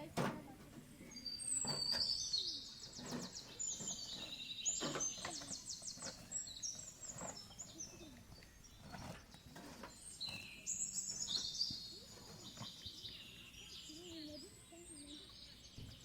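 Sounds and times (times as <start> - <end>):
songbird singing: 0.8 - 16.0.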